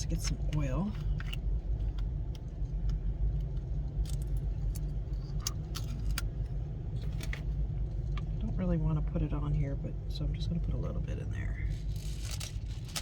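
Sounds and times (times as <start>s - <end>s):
steady low rumble: 0.0s - 13.0s
small items clicking and clattering: 11.7s - 13.0s.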